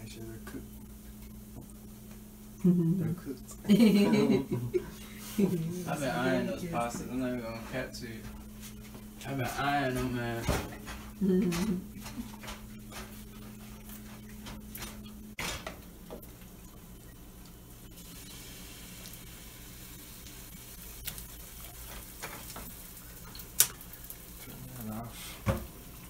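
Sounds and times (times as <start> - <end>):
tomatoes sizzling in a pan: 15.7 - 26.0.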